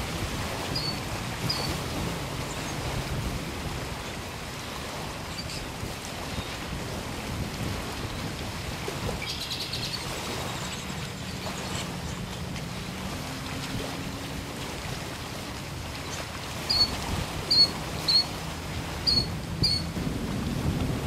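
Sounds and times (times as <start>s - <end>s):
bird trill: 16.7s - 16.9s, 17.5s - 18.3s, 19.0s - 19.9s
sharp high bird chirps: 19.1s - 19.8s.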